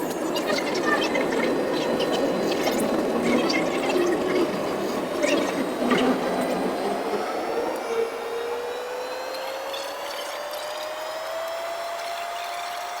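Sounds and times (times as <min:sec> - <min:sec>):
jet engine whine: 0:00.0 - 0:13.0.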